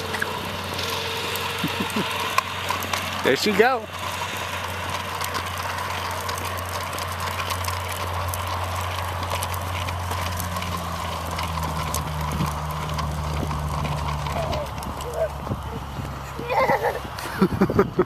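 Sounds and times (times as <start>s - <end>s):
mini bike engine running: 0.0s - 18.0s
second low engine note: 8.0s - 17.6s.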